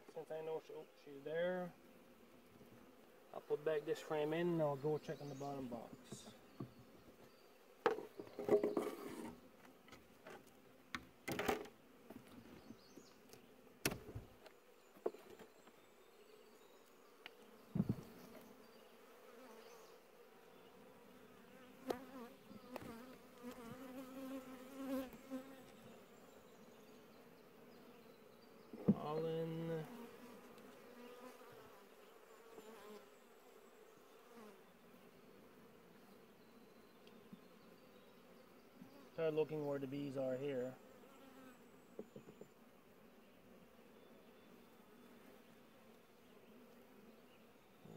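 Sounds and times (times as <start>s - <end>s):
honey bees buzzing: 0.0s - 47.9s
wooden hive frames knocking: 7.8s - 9.0s, 17.7s - 18.1s.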